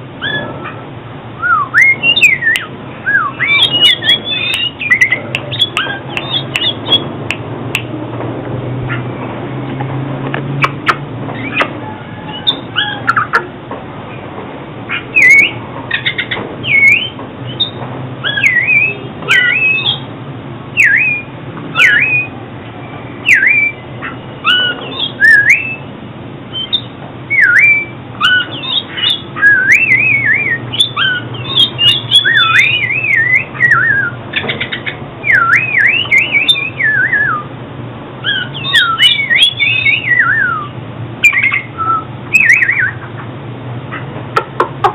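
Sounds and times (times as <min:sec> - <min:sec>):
bird singing whistled phrases: 0:00.2 - 0:00.5, 0:01.4 - 0:07.1, 0:15.1 - 0:20.1, 0:20.8 - 0:22.4, 0:23.2 - 0:25.9, 0:26.5 - 0:37.5, 0:38.2 - 0:43.0.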